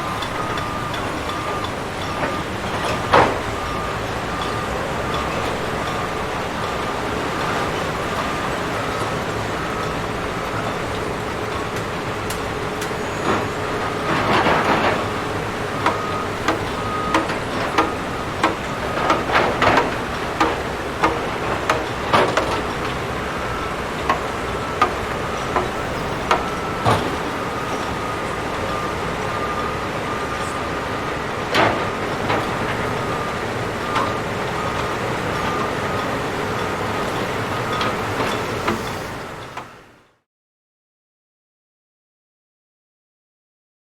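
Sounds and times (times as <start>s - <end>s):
demolition machinery running: 0.0s - 40.0s.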